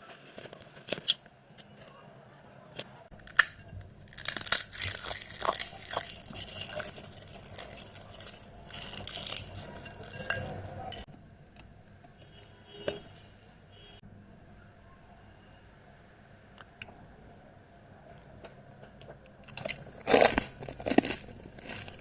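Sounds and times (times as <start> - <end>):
crisp food crunching: 3.1 - 11.1, 18.7 - 22.0
dishes clinking: 4.5 - 11.1.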